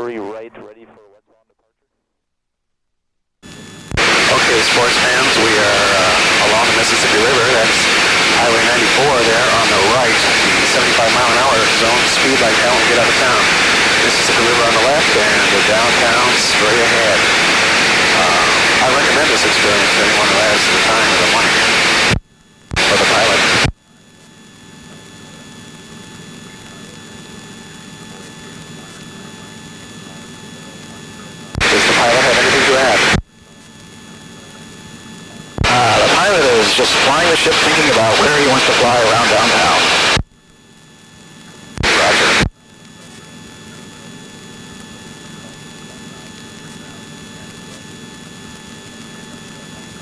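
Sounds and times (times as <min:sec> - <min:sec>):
aircraft engine and airflow drone: 0:04.0 - 0:22.1.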